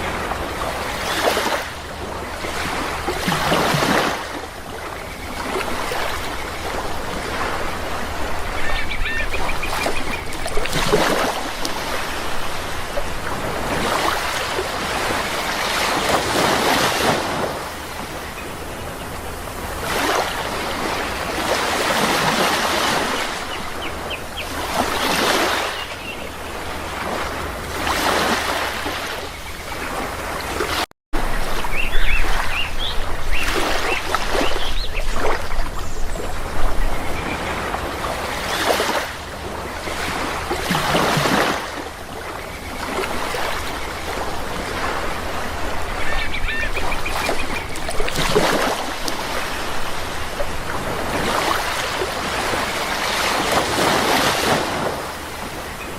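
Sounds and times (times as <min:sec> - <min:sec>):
sea waves washing in: 0:00.0 - 0:55.9
bird calls: 0:04.7 - 0:11.1, 0:22.6 - 0:26.6, 0:31.3 - 0:39.0, 0:41.4 - 0:49.7.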